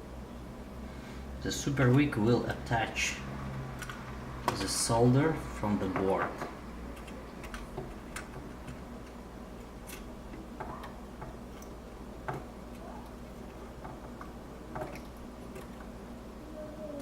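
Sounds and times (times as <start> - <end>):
steady low hum: 0.0 - 17.0
small clicks and taps: 6.0 - 15.9.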